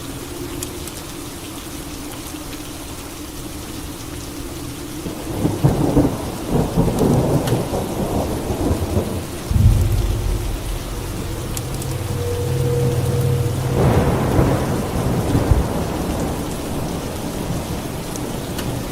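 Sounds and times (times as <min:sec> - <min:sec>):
steady rain falling: 0:00.0 - 0:18.9
thunder rumbling: 0:08.0 - 0:17.7.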